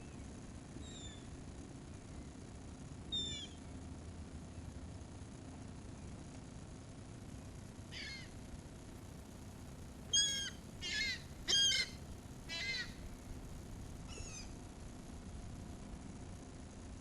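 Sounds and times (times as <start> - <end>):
seagulls mewing calls: 7.9 - 8.3, 10.1 - 13.0.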